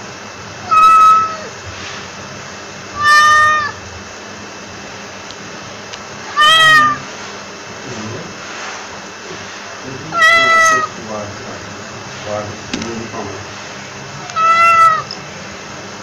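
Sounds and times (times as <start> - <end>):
steady background hiss: 0.0 - 16.0
cat meowing: 0.6 - 1.5, 3.0 - 3.8, 6.3 - 7.1, 10.1 - 11.0, 14.2 - 15.1.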